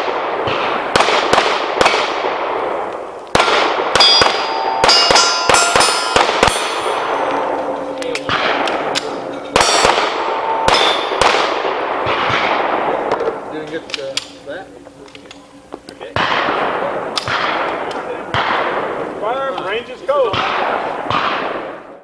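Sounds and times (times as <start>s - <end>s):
pistol shots: 0.0s - 14.4s, 16.2s - 19.0s, 20.3s - 21.9s
steel targets ringing: 3.9s - 12.8s.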